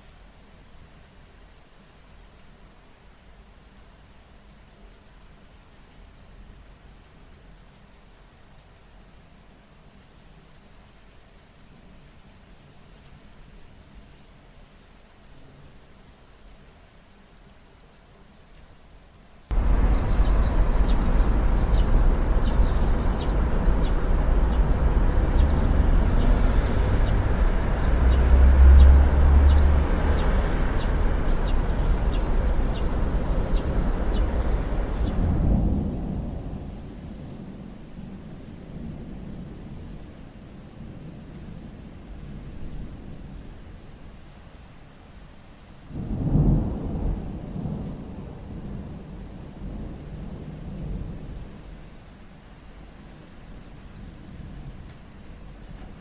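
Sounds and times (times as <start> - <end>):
steady rain: 0.0 - 56.0
deep low rumble: 19.5 - 35.8.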